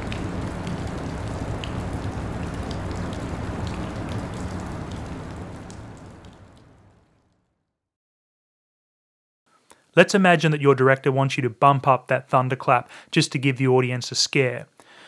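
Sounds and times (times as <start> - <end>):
raindrop ticks: 0.0 - 6.8
steady rain: 0.0 - 7.2.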